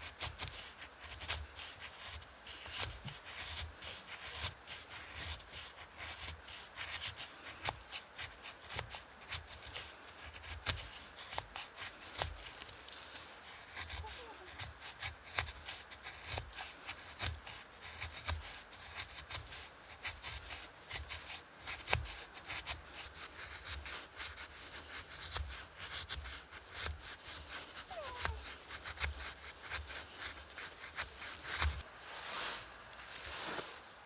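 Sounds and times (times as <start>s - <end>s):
rustling and rubbing: 0.0s - 34.0s.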